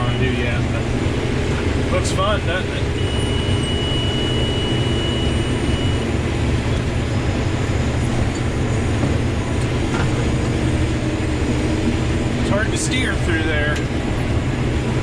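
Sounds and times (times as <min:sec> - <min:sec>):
combine harvester drone: 0:00.0 - 0:15.0.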